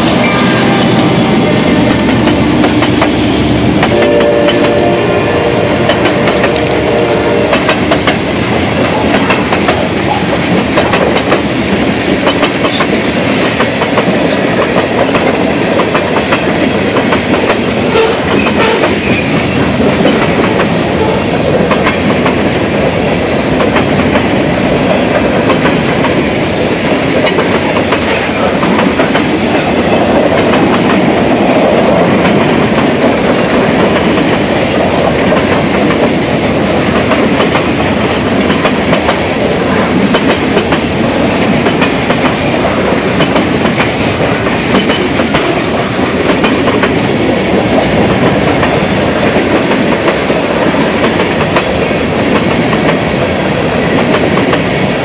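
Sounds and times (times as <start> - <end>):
freight train rumbling past: 0.0 - 55.0
wheels clacking over rail joints: 23.6 - 55.0.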